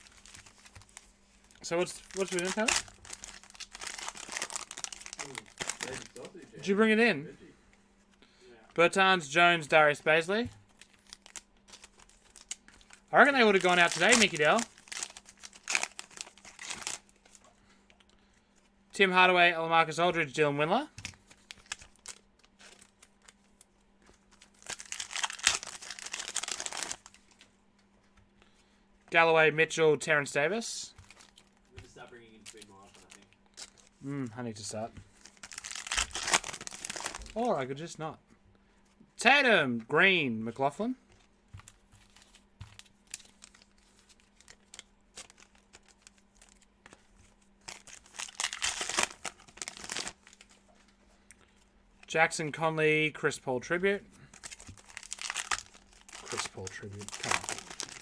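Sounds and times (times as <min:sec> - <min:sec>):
wrapper crinkling: 0:00.0 - 0:06.4, 0:10.5 - 0:17.4, 0:21.0 - 0:27.5, 0:31.0 - 0:34.0, 0:35.1 - 0:37.5, 0:41.6 - 0:50.7, 0:54.2 - 0:58.0.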